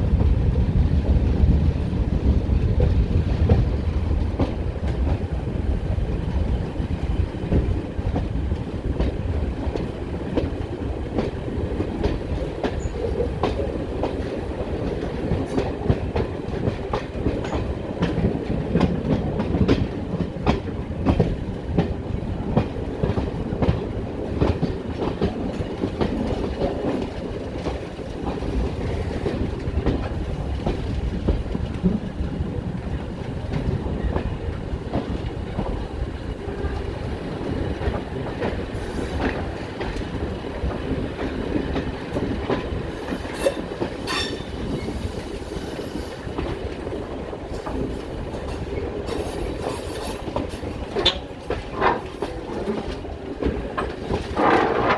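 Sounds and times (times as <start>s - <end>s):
train rumbling: 0.0s - 54.9s
wheels clacking over rail joints: 32.8s - 54.9s.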